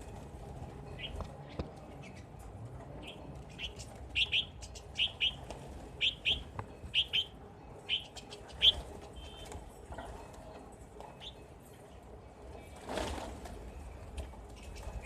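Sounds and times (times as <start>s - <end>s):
starlings chirping: 3.0s - 5.4s, 6.0s - 9.4s.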